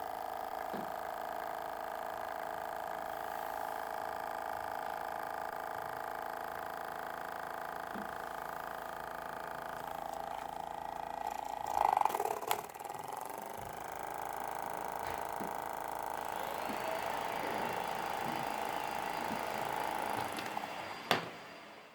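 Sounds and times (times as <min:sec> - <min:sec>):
small motor whining: 0:00.0 - 0:21.9.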